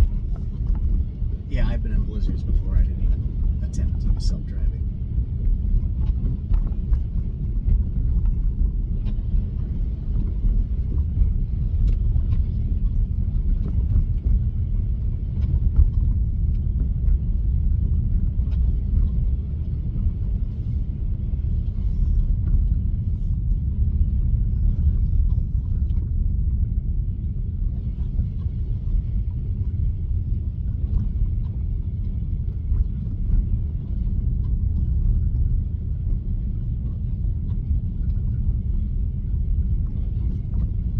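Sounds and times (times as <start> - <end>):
road and tyre rumble in car: 0.0 - 40.9.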